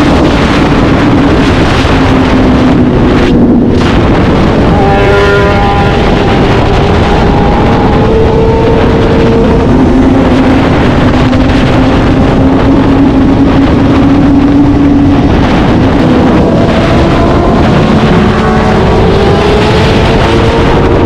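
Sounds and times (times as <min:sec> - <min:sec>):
motorcycle engine at high revs: 0:00.0 - 0:21.0
wind rush on microphone: 0:00.0 - 0:21.0.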